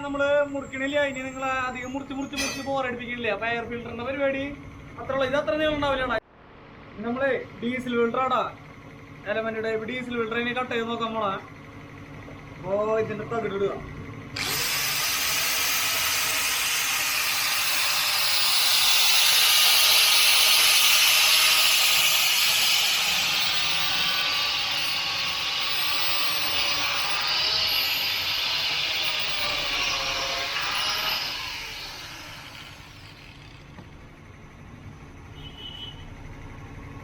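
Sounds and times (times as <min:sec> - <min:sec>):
angle grinder cutting metal: 0:02.4 - 0:02.8, 0:14.4 - 0:33.8.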